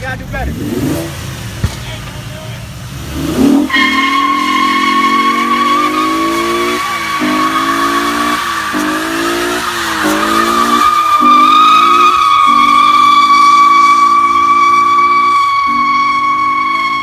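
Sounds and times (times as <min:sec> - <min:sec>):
car engine revving: 0:00.0 - 0:17.0
tyres squealing: 0:01.6 - 0:17.0.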